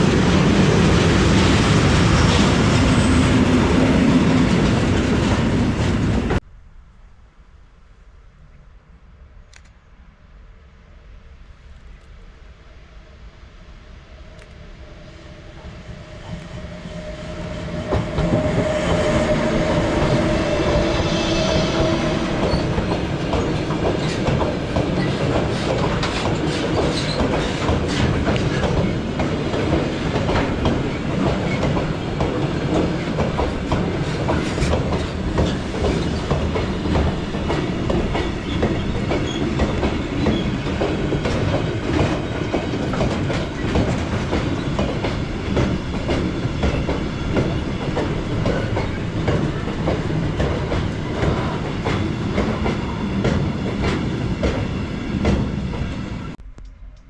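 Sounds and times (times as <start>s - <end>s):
approaching train hum: 0.0s - 57.0s
train wheels clattering on rail joints: 17.7s - 56.3s.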